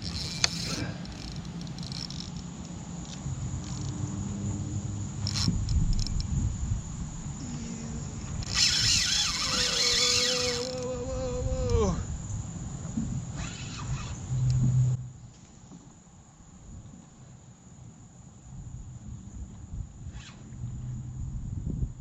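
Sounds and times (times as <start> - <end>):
insect buzzing: 0.0 - 15.0.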